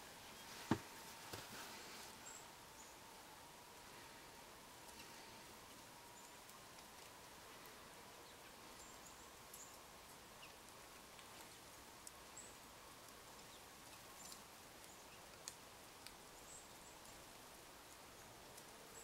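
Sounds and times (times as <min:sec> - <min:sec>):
faint steady hiss: 0:00.0 - 0:19.0
soft ticks: 0:13.0 - 0:16.2.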